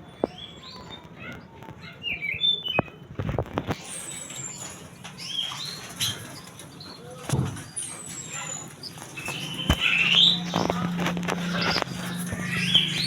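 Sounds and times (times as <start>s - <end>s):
bird singing whistles and trills: 0.0s - 1.1s, 2.0s - 3.0s.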